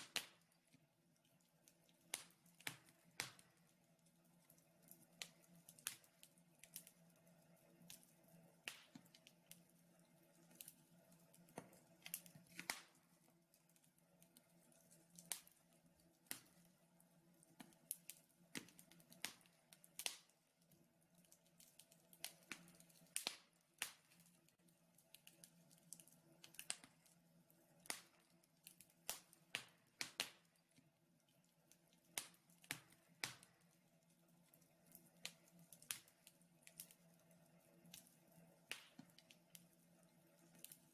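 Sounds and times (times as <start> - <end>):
faint steady hum: 0.0 - 40.9
wood fire crackling: 0.0 - 40.9.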